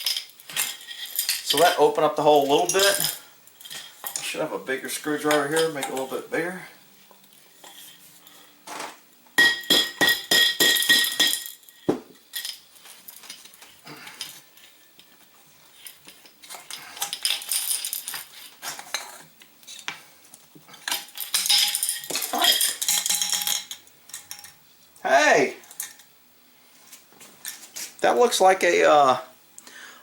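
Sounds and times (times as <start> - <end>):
metal scraping on metal: 7.5 - 8.6.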